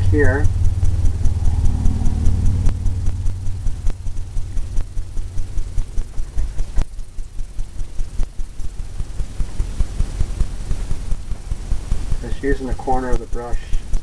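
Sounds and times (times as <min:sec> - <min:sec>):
fan brush tapping on canvas: 0:07.8 - 0:14.0.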